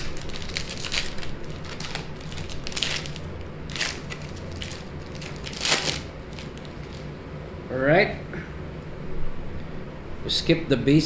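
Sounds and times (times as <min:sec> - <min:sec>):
wrapper tearing and crinkling: 0:00.0 - 0:07.1
low steady hum: 0:00.0 - 0:11.0.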